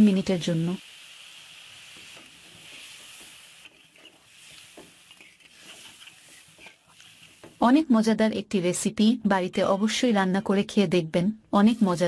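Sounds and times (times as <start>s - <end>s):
food sizzling in a pan: 0.0s - 8.0s
spoon strokes: 2.5s - 7.4s.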